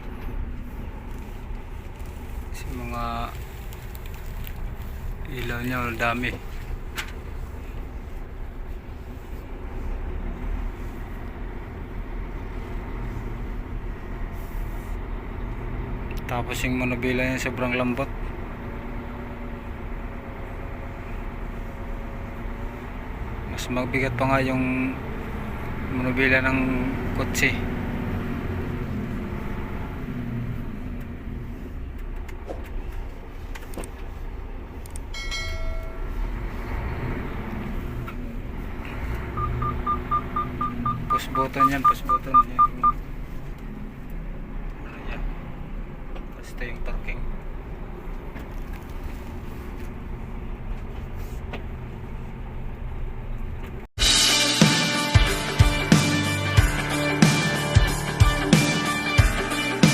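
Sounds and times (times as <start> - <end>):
truck engine low rumble: 0.0 - 54.4
electronic beep: 39.4 - 43.0.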